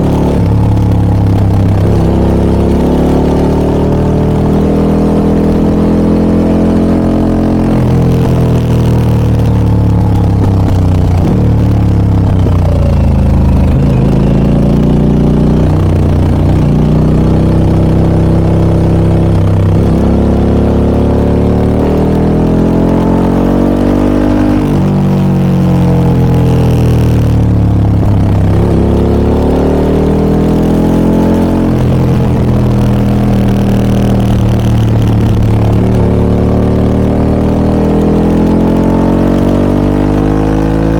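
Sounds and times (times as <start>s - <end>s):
motorcycle exhaust revving: 0.0s - 40.9s.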